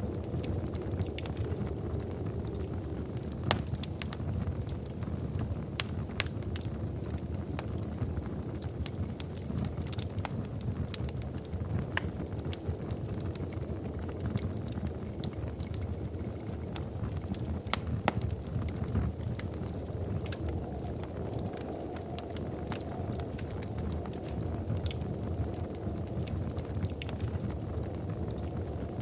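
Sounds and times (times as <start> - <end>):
fire pops and snaps: 0.0 - 29.0
rumble of flames: 0.0 - 29.0.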